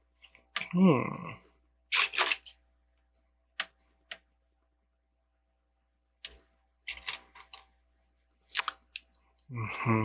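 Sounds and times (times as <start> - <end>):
plastic bricks clicking and rattling: 6.8 - 7.7.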